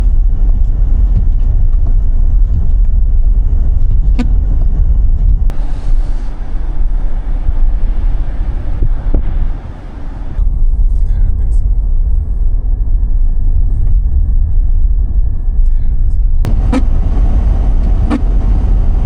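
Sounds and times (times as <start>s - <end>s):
car tyres and engine rumble: 0.0s - 19.0s
steady hiss: 5.5s - 10.4s.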